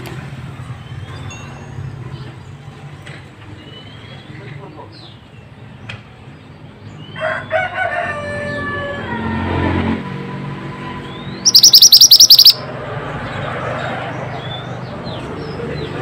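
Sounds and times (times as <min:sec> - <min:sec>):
bird chirping: 0:11.2 - 0:12.6
rapid high bird trill: 0:11.4 - 0:12.7.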